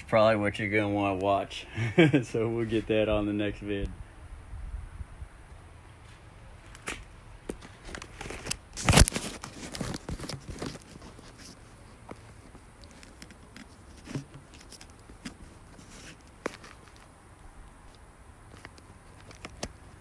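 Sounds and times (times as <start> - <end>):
handling rustling and clicks: 6.6 - 20.0.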